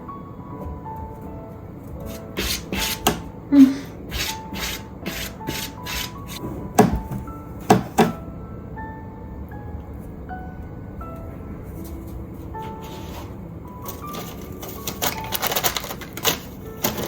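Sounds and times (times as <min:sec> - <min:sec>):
soft background music: 0:00.0 - 0:17.0
rasping scratching strokes: 0:02.0 - 0:03.2, 0:04.1 - 0:06.4
sharp knocks: 0:06.7 - 0:08.2.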